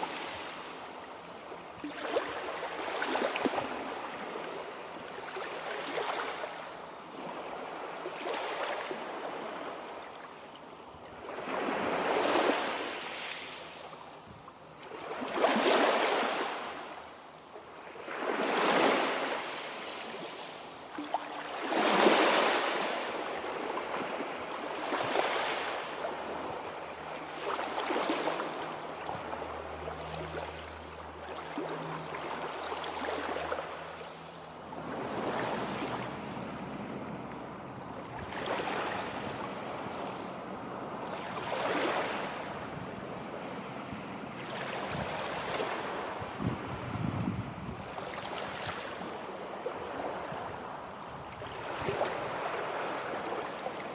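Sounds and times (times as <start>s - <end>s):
sea waves breaking on shore: 0.0s - 53.9s.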